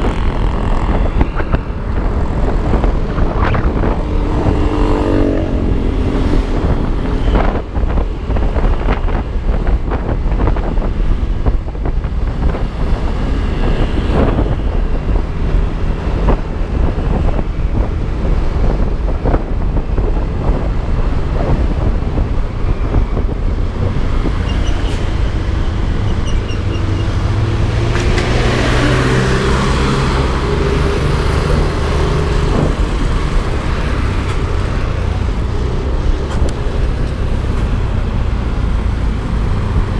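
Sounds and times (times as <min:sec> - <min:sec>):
scooter engine: 0:00.0 - 0:06.6
traffic noise: 0:00.0 - 0:39.9
wind rushing over microphone: 0:00.0 - 0:39.9.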